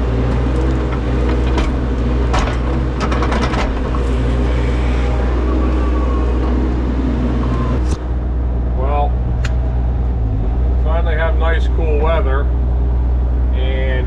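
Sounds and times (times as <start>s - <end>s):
engine running steadily: 0.0s - 14.0s
clicks and rattles: 0.2s - 4.2s.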